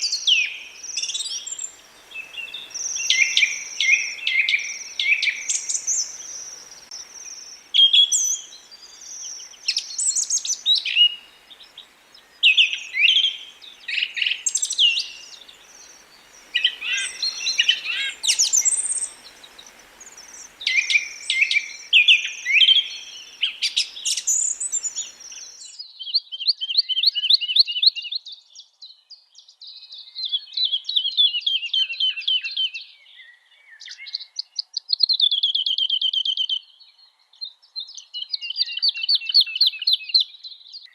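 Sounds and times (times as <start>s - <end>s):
bird trills: 0.0s - 25.8s
birds chirping and whistling: 0.0s - 25.8s
faint hiss: 0.0s - 25.8s.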